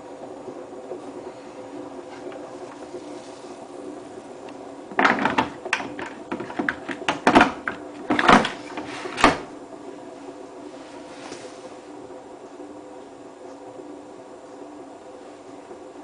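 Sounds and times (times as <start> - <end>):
washing machine motor hum: 0.0 - 16.0
washing machine drum splashing and knocking: 4.9 - 9.5.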